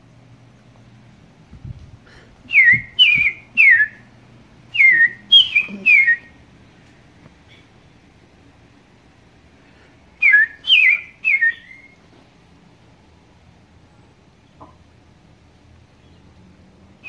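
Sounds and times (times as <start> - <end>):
bird singing whistled notes: 2.5 - 4.1, 4.7 - 6.4, 10.2 - 12.0.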